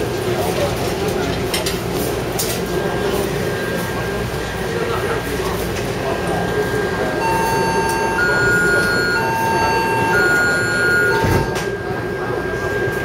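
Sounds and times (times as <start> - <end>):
train running hum: 2.7 - 13.0
thin constant whine: 6.0 - 13.0
two-tone electronic chime: 7.2 - 13.0.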